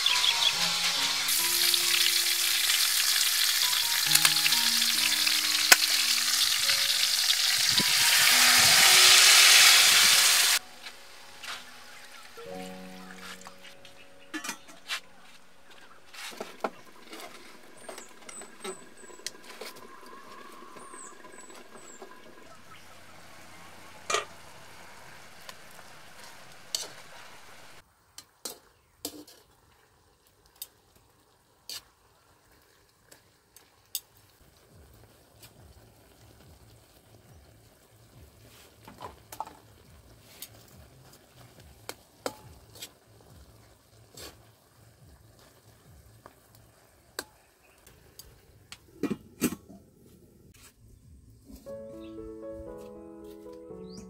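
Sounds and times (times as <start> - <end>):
bird chirps: 0.0 - 1.0, 11.1 - 25.1, 53.7 - 54.0
pork sizzling in a wok: 0.0 - 13.2, 16.1 - 48.6.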